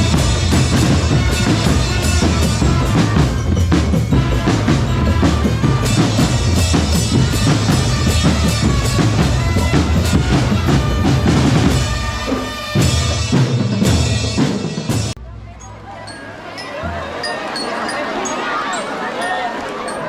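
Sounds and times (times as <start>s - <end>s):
bass drums pounding: 0.0s - 12.2s
snare drums pounding: 0.0s - 15.2s.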